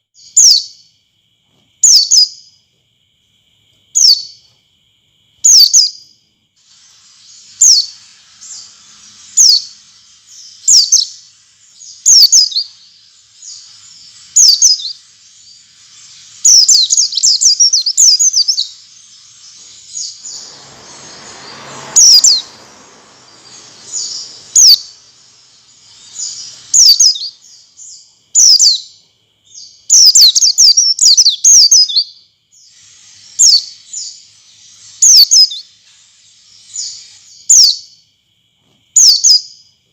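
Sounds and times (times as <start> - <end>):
white-eye bird chirping: 1.8 - 2.5, 4.0 - 4.4, 5.4 - 6.0, 6.6 - 38.0, 39.0 - 39.6
brief rushing noise: 19.0 - 27.1.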